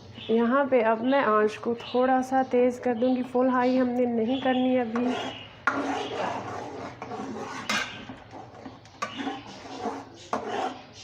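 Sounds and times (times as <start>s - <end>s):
spoon scraping a pan: 4.4s - 11.0s.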